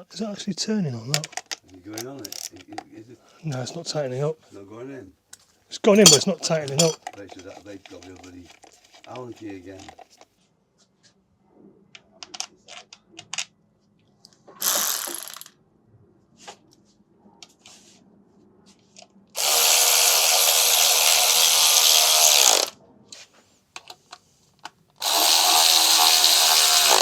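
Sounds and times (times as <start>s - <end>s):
metal tools clicking: 1.1s - 2.7s, 6.0s - 8.6s, 14.6s - 15.5s
electric drill running: 14.6s - 15.5s, 19.4s - 22.7s, 25.0s - 27.0s.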